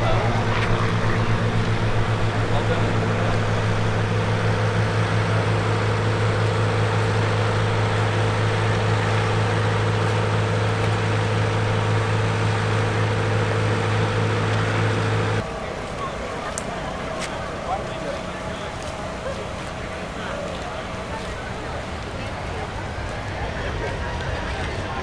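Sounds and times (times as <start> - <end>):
aircraft engine droning: 0.0 - 25.0.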